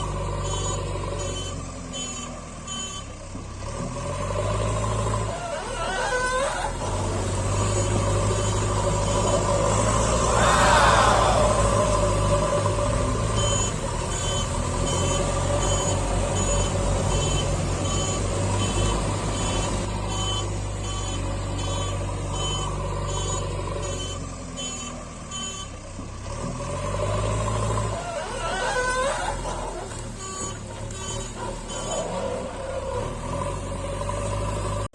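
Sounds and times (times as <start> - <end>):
low engine hum: 0.0 - 34.9
reversing alarm beeps: 0.4 - 3.2, 7.5 - 10.3, 13.2 - 25.8, 30.2 - 32.2.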